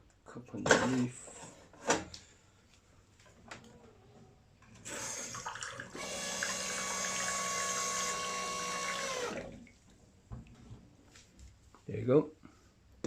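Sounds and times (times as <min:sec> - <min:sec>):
water splashing into cup: 0:05.2 - 0:06.5.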